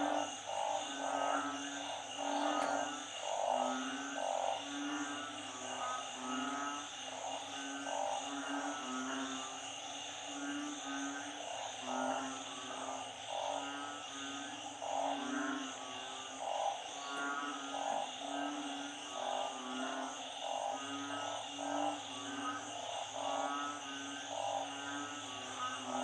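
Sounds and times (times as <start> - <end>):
frogs croaking in chorus: 0.0 - 26.0
high insect drone: 0.0 - 26.0.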